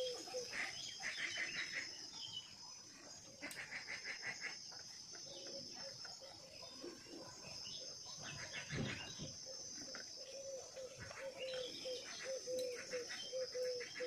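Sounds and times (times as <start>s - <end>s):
birds chirping: 0.0s - 14.0s
rapid bird trills: 7.8s - 14.0s.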